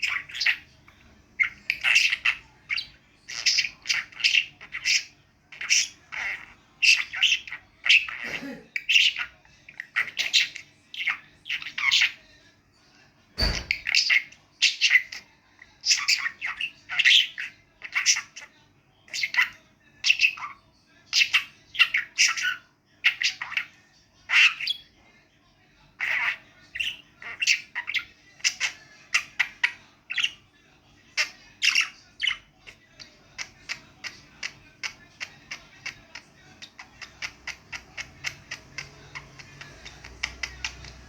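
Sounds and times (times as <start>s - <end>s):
budgerigar chattering: 0.0s - 0.7s, 1.4s - 12.2s, 13.4s - 15.2s, 26.0s - 30.4s, 33.3s - 41.0s
low thump: 13.4s - 13.8s.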